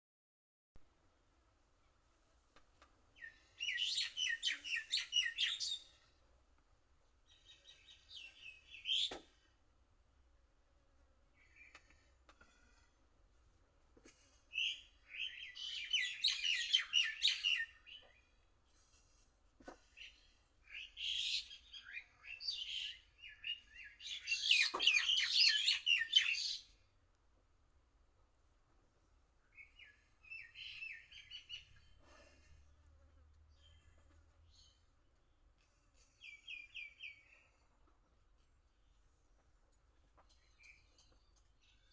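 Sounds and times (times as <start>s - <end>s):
small bird twittering: 14.6s - 18.0s, 20.7s - 26.6s.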